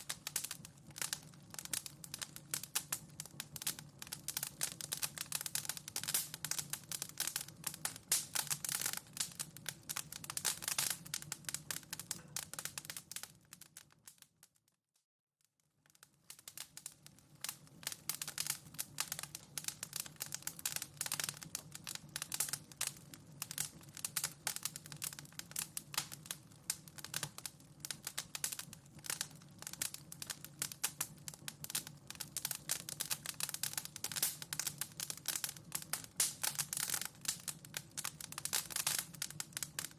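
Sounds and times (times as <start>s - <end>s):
low fire rumble: 0.0s - 12.9s
wood fire crackling: 0.0s - 14.5s, 15.8s - 39.9s.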